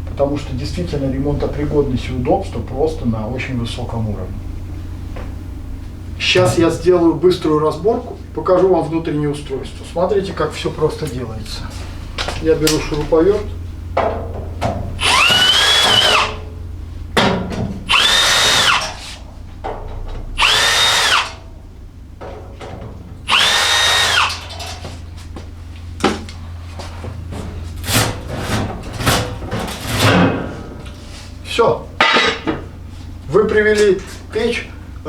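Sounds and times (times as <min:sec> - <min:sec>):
cordless drill whining: 0:15.0 - 0:16.5, 0:17.9 - 0:19.2, 0:20.4 - 0:21.4, 0:23.3 - 0:24.8
metal parts knocking and clattering: 0:22.2 - 0:25.0, 0:27.2 - 0:31.2.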